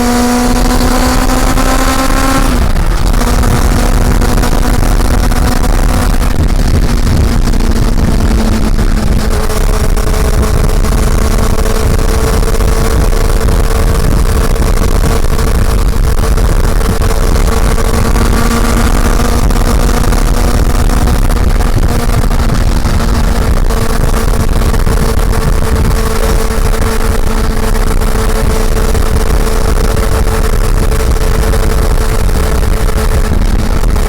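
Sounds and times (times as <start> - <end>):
motorcycle engine cruising: 0.0 - 34.0.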